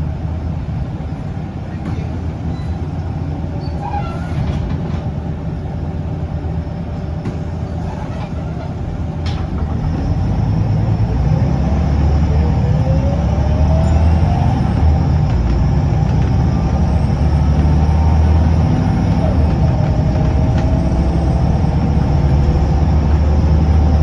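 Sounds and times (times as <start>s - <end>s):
bus diesel engine rumbling: 0.0s - 24.0s.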